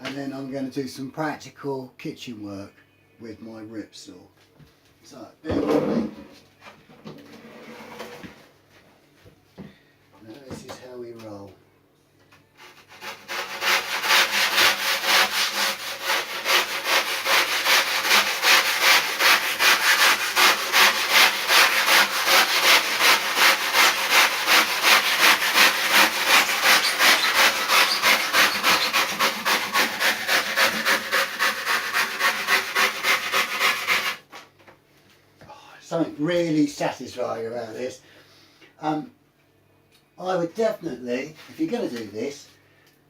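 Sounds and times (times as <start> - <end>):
hand saw cutting foam: 12.6 - 34.3.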